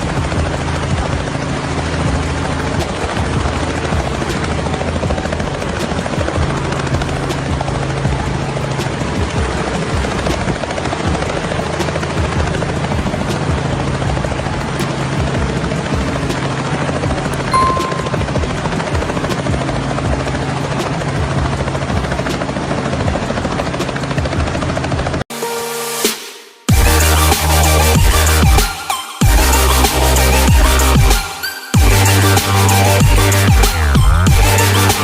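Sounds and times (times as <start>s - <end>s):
brief high tone: 17.4s - 18.6s.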